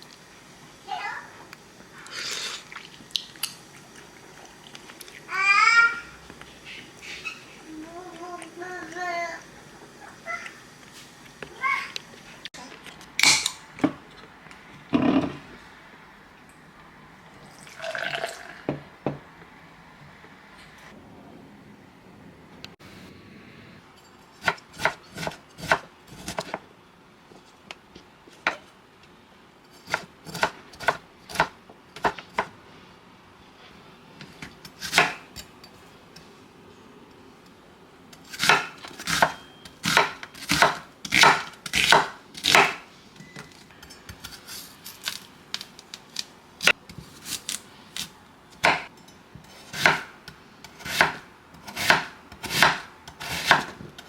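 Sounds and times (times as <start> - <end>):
knife chopping on cutting board: 34.8 - 35.2, 38.4 - 42.8, 49.7 - 54.0.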